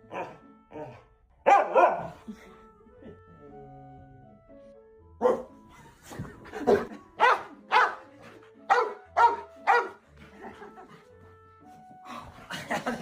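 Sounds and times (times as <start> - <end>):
dog barking: 1.4 - 2.2, 5.2 - 5.6, 6.7 - 8.1, 8.7 - 10.0.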